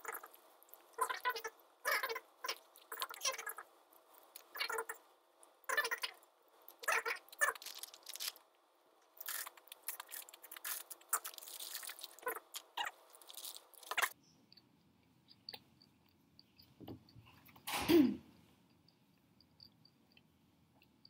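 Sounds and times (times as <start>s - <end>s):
soft chewing: 0.0s - 17.6s
crunching fries: 5.7s - 8.5s, 9.1s - 14.2s.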